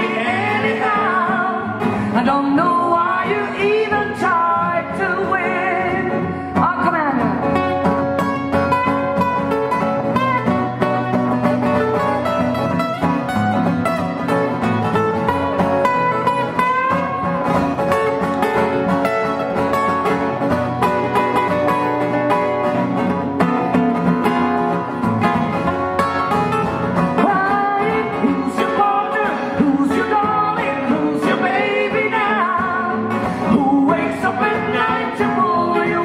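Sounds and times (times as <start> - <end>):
acoustic guitars playing: 0.0 - 36.0.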